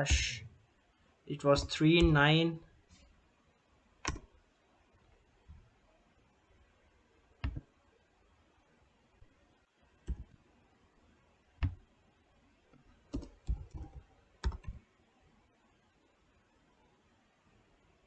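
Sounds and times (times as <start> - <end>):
computer keyboard keystrokes: 4.0 - 4.3, 7.4 - 7.6, 10.1 - 10.4, 13.1 - 14.8.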